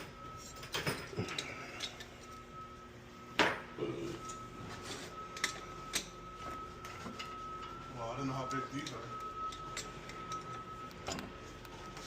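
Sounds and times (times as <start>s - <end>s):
metal tools clinking: 8.5s - 11.3s.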